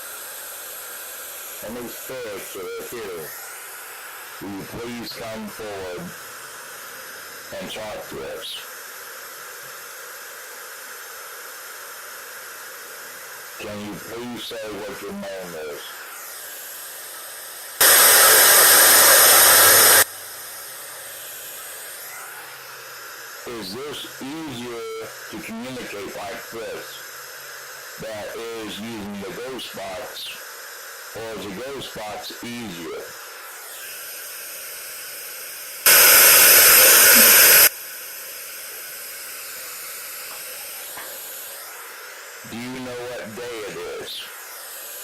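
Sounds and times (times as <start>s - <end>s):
white noise hissing: 0.0s - 33.7s, 35.3s - 45.0s
white noise hiss: 16.9s - 21.0s, 35.7s - 43.0s.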